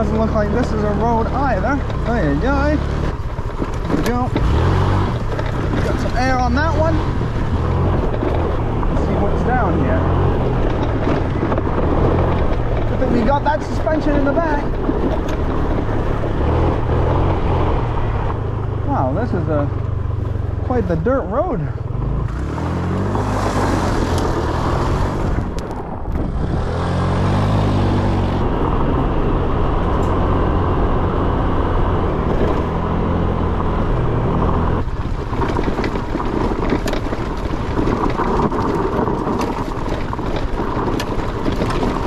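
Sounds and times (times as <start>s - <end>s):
road rattle and knocks: 0.0s - 42.0s
scooter engine accelerating: 0.0s - 42.0s
wind rush: 22.3s - 42.0s.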